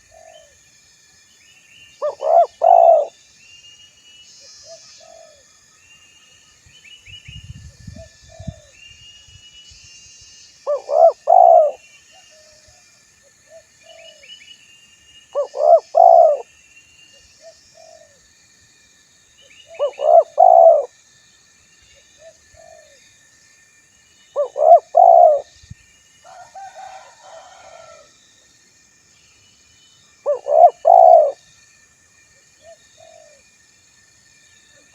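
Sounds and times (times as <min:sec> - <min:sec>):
dove cooing: 0:00.0 - 0:00.6, 0:02.0 - 0:03.1, 0:04.7 - 0:05.4, 0:10.7 - 0:11.8, 0:15.4 - 0:16.5, 0:19.7 - 0:20.9, 0:24.4 - 0:25.5, 0:30.3 - 0:31.4, 0:32.6 - 0:33.4
small birds chirping faintly: 0:00.0 - 0:34.9.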